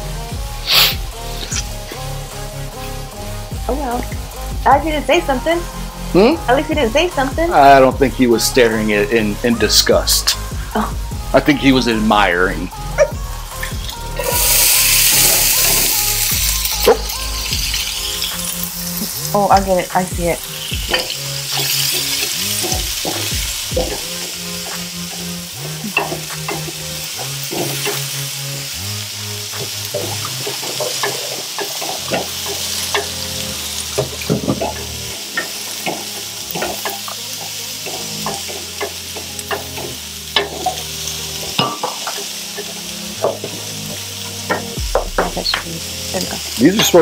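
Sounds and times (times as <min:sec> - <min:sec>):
onion sizzling in a pan: 0:00.0 - 0:47.0
metal tongs scraping a pan: 0:20.5 - 0:28.4, 0:29.4 - 0:45.6.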